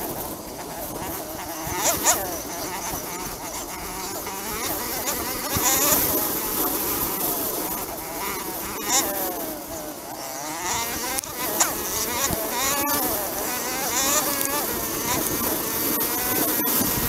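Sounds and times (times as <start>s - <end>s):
dirt bike engine revving: 0.0s - 17.0s
wind noise rushing: 10.6s - 17.0s.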